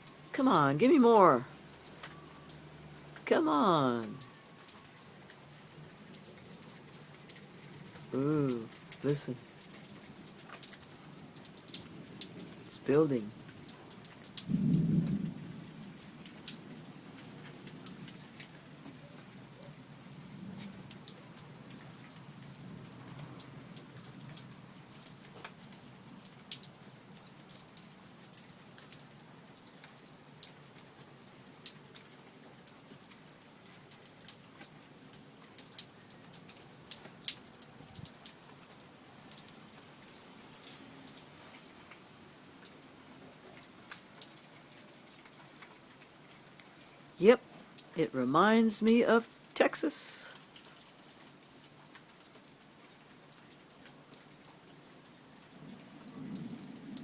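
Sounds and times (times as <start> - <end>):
raindrops ticking close by: 0.0 - 57.0
steady rain: 0.0 - 57.0
low thunder rumble: 14.5 - 15.6.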